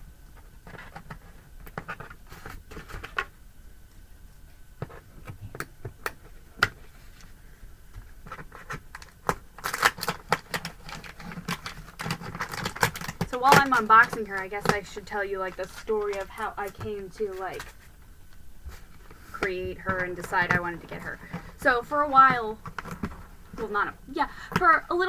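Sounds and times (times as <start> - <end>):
packaging rustling: 4.9 - 25.0
cardboard and plastic clicks: 8.0 - 14.9.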